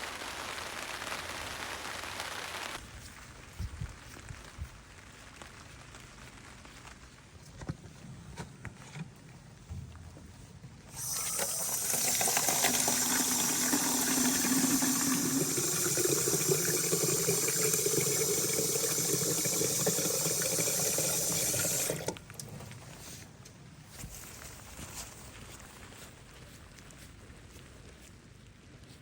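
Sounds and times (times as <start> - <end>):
water running into container: 10.9 - 22.6.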